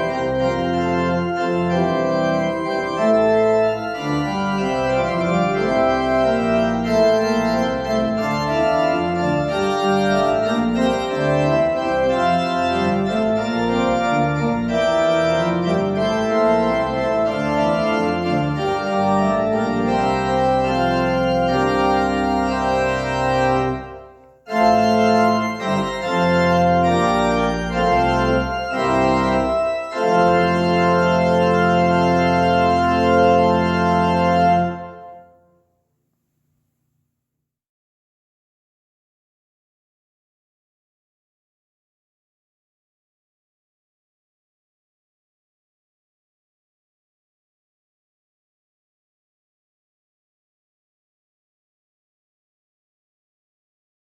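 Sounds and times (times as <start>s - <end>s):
church organ playing chords: 0.0s - 35.6s.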